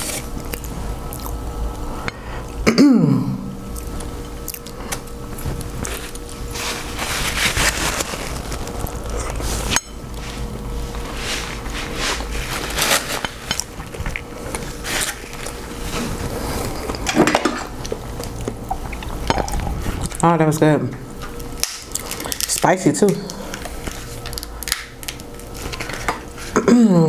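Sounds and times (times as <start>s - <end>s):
eating shellfish with wet handling: 3.7s - 20.3s.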